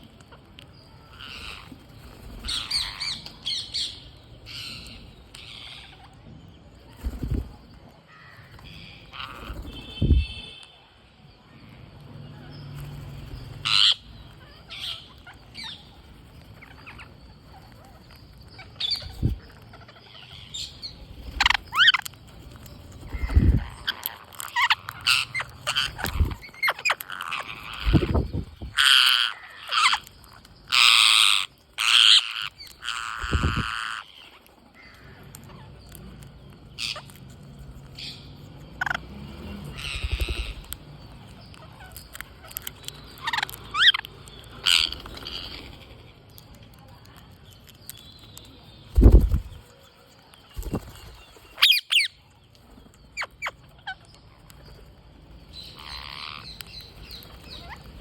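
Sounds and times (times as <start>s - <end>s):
parrots squawking: 2.4s - 6.1s, 8.3s - 10.4s, 13.6s - 15.9s, 23.1s - 30.1s, 30.7s - 35.7s, 36.8s - 37.2s, 39.6s - 40.8s, 41.5s - 46.1s, 55.6s - 58.0s.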